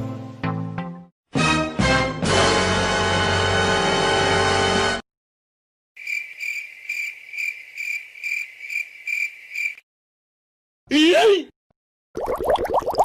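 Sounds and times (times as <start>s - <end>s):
cricket chirping: 6.0s - 9.8s.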